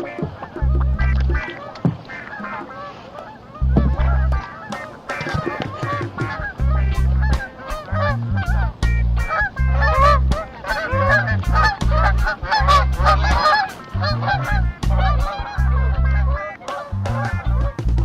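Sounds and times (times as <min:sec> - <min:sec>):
geese honking: 0:00.0 - 0:18.0
low rumble: 0:00.6 - 0:01.4, 0:03.6 - 0:04.4, 0:06.4 - 0:10.4, 0:11.0 - 0:13.4, 0:14.0 - 0:16.4.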